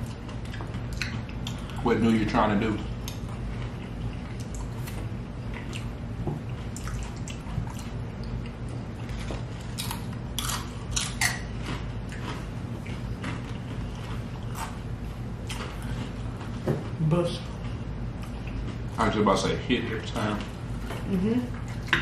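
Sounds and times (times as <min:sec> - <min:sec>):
chewing with wet mouth clicks: 0:00.0 - 0:01.8, 0:02.8 - 0:14.8, 0:15.4 - 0:16.5, 0:17.5 - 0:18.9
steady low hum: 0:00.0 - 0:22.0.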